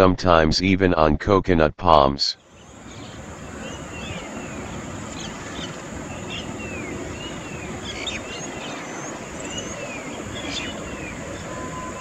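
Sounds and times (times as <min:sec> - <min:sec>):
birds whistling and chirping: 0:02.9 - 0:12.0.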